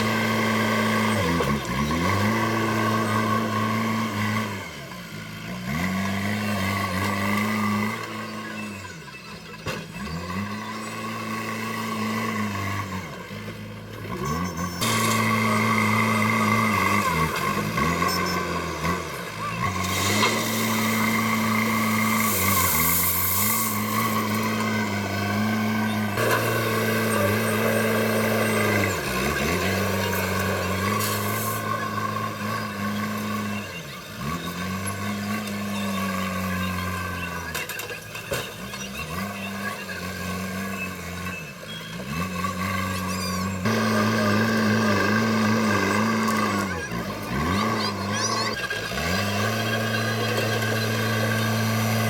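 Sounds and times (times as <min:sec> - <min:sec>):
diesel engine running under load: 0:00.0 - 0:52.0.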